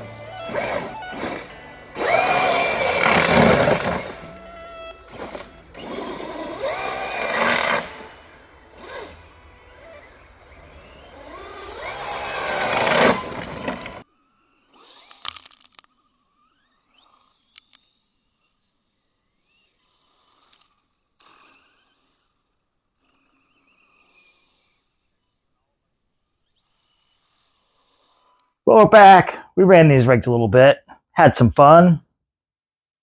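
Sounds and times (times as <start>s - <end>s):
background music: 0.0s - 14.0s
electric motors whining: 0.0s - 14.0s.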